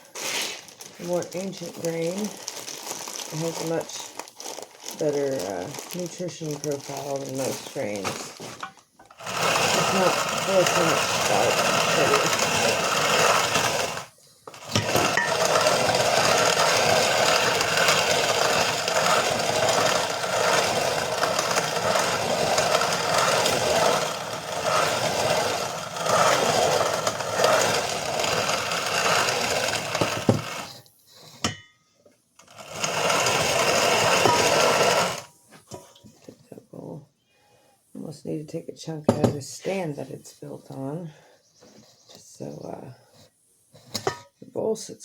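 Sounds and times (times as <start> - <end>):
grain mill grinding: 0.0 - 30.9, 32.4 - 35.3.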